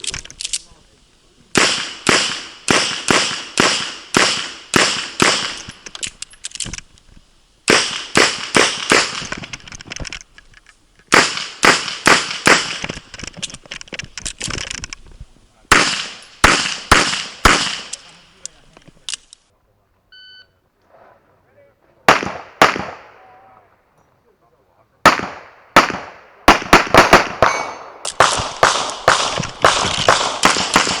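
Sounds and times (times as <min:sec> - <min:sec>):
pistol shots with echo: 0:01.5 - 0:05.8, 0:07.7 - 0:09.4, 0:11.1 - 0:12.9, 0:15.7 - 0:18.2, 0:22.1 - 0:23.4, 0:25.0 - 0:31.0.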